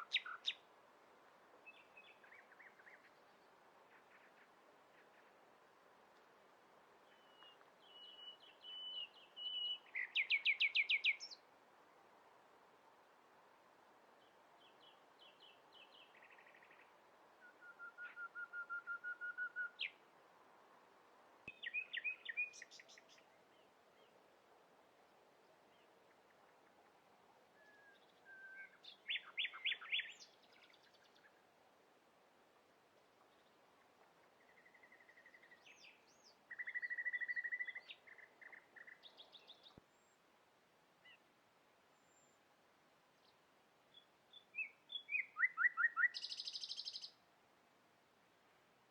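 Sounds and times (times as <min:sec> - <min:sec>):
faint outdoor hiss: 0:00.0 - 0:48.9
songbirds singing: 0:07.0 - 0:11.5, 0:21.5 - 0:24.2, 0:27.6 - 0:31.5, 0:34.3 - 0:40.2, 0:43.1 - 0:47.2.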